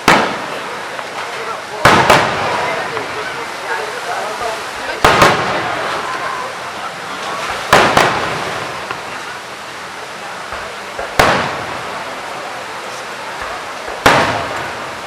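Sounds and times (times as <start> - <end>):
firework shells bursting: 0.0 - 3.2, 4.7 - 6.4, 7.3 - 9.4, 10.5 - 12.2, 13.4 - 15.0
fireworks crackling and hiss: 0.0 - 15.0.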